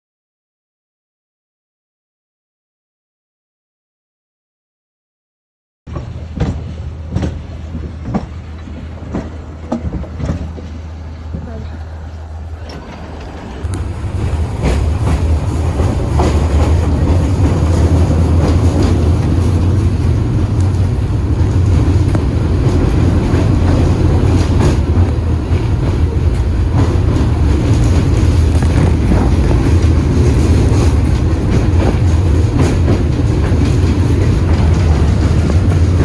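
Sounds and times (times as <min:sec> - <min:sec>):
tram rumbling on rails: 0:05.9 - 0:36.0.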